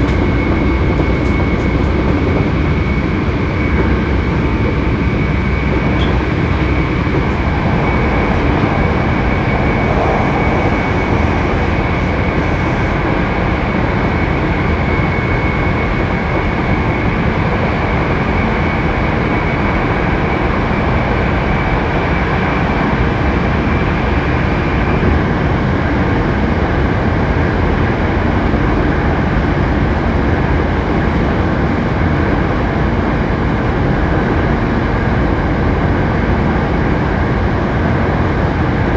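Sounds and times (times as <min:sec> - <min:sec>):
train wheels rolling on rail: 0:00.0 - 0:35.6
high steady whine: 0:02.8 - 0:14.1.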